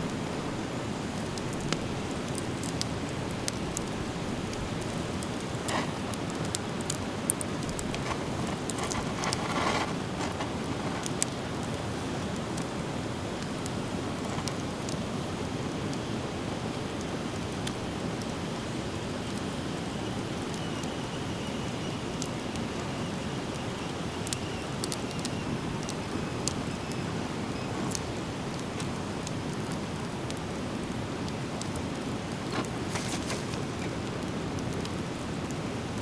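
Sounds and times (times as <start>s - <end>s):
rustle: 0.0s - 36.0s
campfire crackling and popping: 0.1s - 36.0s.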